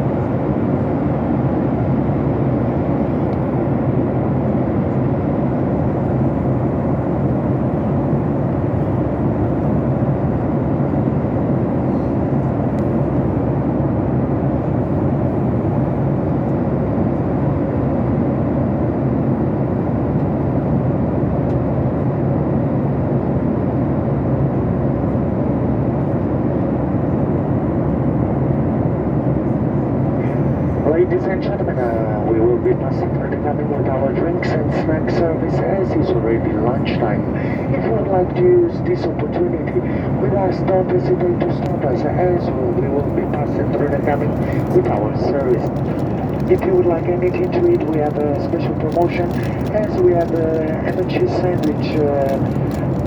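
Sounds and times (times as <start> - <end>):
aircraft cabin engine roar: 0.0 - 53.0
airflow noise: 41.4 - 53.0.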